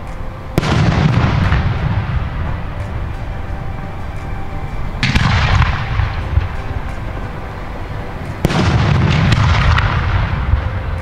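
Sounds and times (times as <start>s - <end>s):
fireworks booming with echo: 0.0s - 11.0s.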